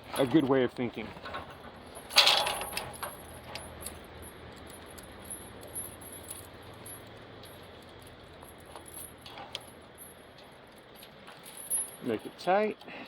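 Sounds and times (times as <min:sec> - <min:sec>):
chain rattling: 0:00.0 - 0:00.6, 0:01.2 - 0:12.5.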